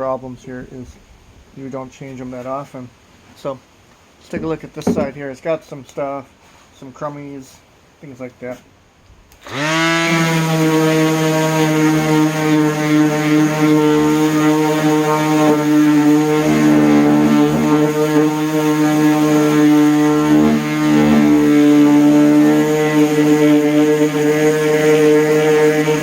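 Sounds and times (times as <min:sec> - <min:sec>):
orbital sander running: 0:09.4 - 0:26.0.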